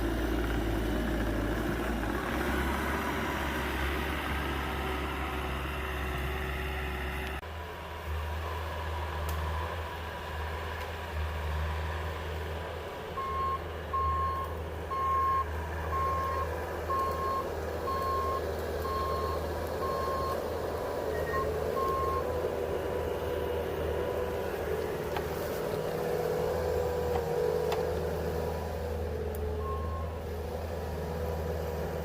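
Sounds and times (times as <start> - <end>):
diesel engine rumble: 0.0 - 32.0
reversing alarm beeping: 13.2 - 20.4, 21.1 - 22.3, 29.6 - 30.2.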